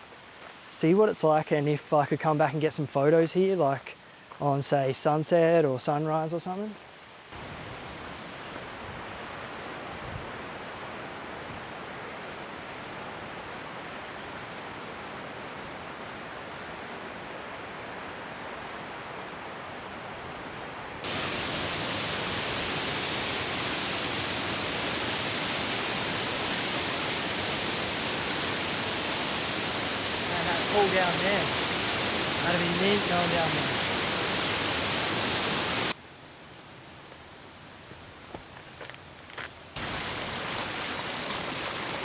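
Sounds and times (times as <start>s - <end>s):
waterfall rushing: 7.4s - 36.0s, 39.8s - 42.0s.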